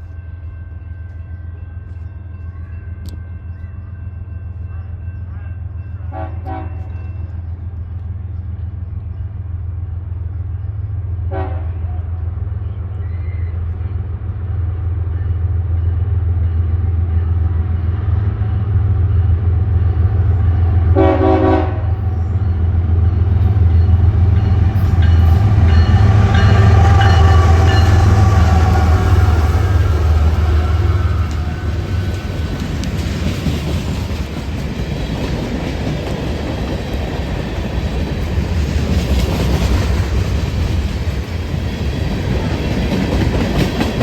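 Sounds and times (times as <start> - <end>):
locomotive engine rumble: 0.0 - 44.0
wheel and rail noise: 0.0 - 44.0
train horn blast: 6.0 - 6.9, 11.3 - 12.2, 20.9 - 22.1, 24.8 - 32.6.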